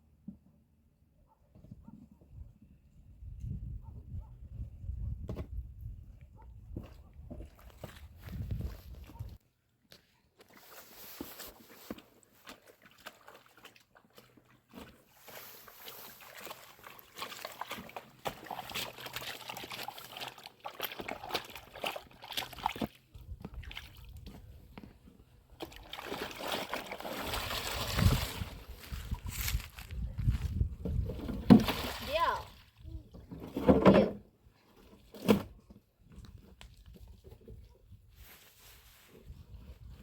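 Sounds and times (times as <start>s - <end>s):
water sloshing and splashing: 10.4s - 34.0s.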